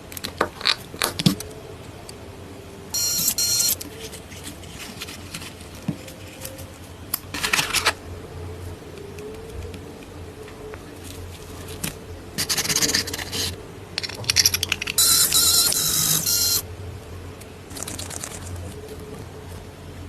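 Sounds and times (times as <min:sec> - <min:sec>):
steady low hum: 0:01.3 - 0:20.0
faint wavering whine: 0:01.5 - 0:04.8, 0:13.6 - 0:17.3.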